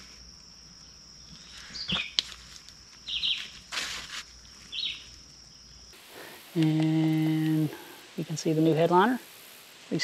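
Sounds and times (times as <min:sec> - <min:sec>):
bird chirps: 0:01.2 - 0:02.2, 0:03.0 - 0:03.6, 0:04.4 - 0:05.9
brief rustle: 0:01.6 - 0:04.3.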